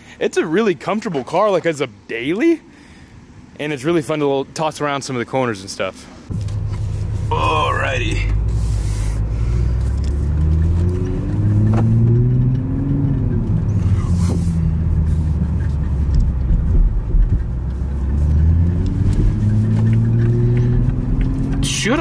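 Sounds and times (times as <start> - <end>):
car engine revving: 6.3 - 22.0.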